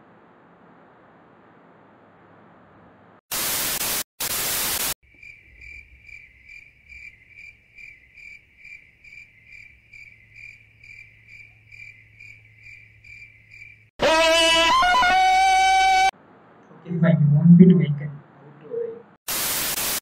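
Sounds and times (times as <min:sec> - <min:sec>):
tv static burst: 0:03.3 - 0:05.0, 0:19.3 - 0:20.0
crickets chirping: 0:05.0 - 0:13.9.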